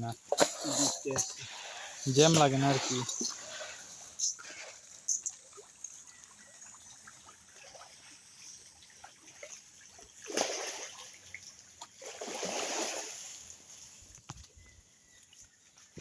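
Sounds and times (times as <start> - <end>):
fish splashing in pond: 2.8 - 13.7.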